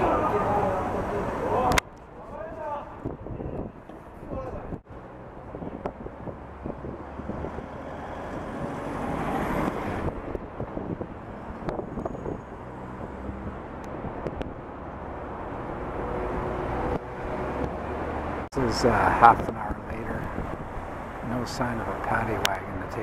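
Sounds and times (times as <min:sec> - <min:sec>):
road traffic rumble: 0:00.0 - 0:23.0
vehicle passing: 0:04.8 - 0:23.0.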